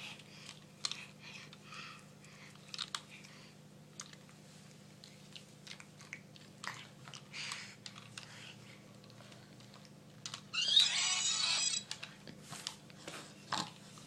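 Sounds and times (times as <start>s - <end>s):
cat chewing crunchy snack: 2.3s - 10.4s.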